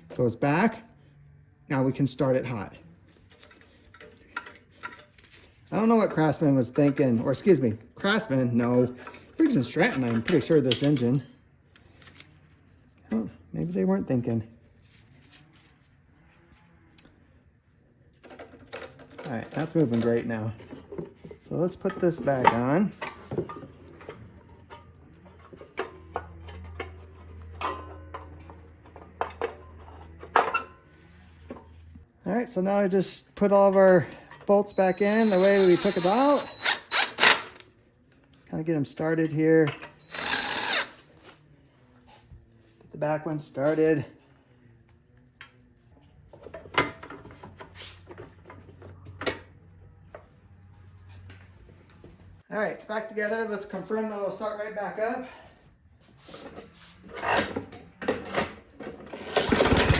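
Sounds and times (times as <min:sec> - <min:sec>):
metal and plastic parts clattering: 0:03.3 - 0:05.9, 0:08.8 - 0:12.4, 0:18.2 - 0:30.8, 0:57.2 - 0:59.9
metal tools and bolts clinking: 0:03.3 - 0:12.3, 0:18.3 - 0:30.8, 0:33.7 - 0:37.5, 0:57.1 - 0:59.9.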